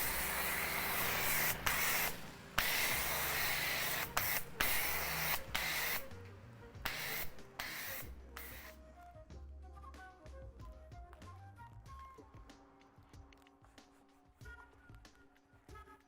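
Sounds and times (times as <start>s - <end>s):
pressure washer spraying: 0.0s - 6.2s, 6.8s - 8.8s.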